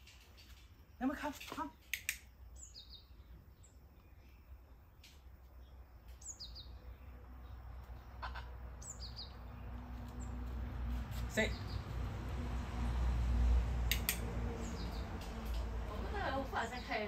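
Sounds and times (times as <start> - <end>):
small bird chirping: 0.0 - 12.1, 13.9 - 15.6
sharp click: 1.8 - 2.3, 13.9 - 14.3.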